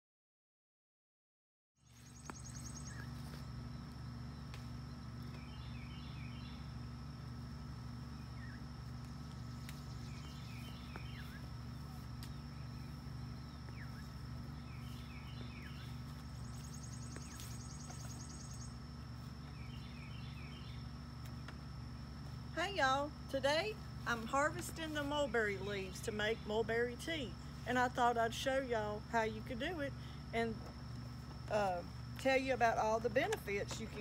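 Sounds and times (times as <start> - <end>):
bird chirps: 1.8 - 3.9, 4.9 - 6.8, 9.2 - 18.8, 19.4 - 20.9
songbird singing: 1.8 - 34.0
steady low hum: 1.8 - 34.0.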